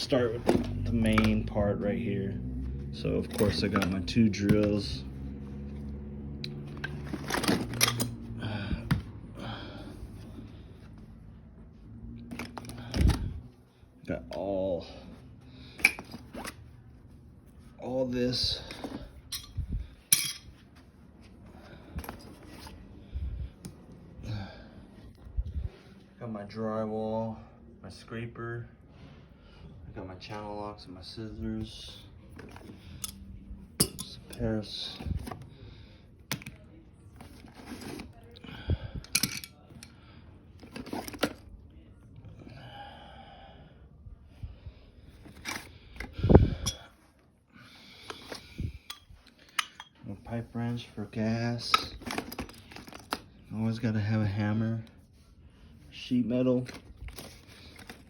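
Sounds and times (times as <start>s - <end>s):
tools rustling in tote: 3.1s - 5.0s, 6.6s - 8.4s, 15.7s - 23.0s, 36.3s - 38.3s, 40.5s - 41.6s, 45.1s - 47.1s, 47.9s - 53.9s, 55.9s - 58.0s
hand tools clicking and knocking: 48.8s - 50.0s.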